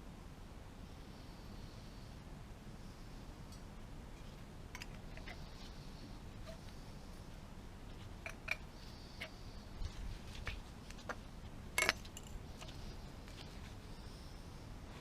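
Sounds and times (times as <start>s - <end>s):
low steady background noise: 0.0s - 15.0s
metal parts clicking and clinking: 4.7s - 5.4s, 8.1s - 9.3s, 10.9s - 12.8s.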